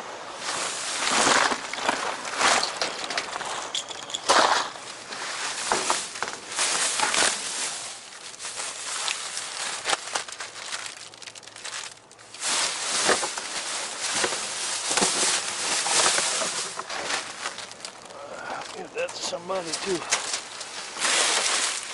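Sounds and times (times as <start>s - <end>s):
plastic bags crinkling: 0.5s - 21.9s
clicks and knocks of handled items: 1.0s - 7.4s.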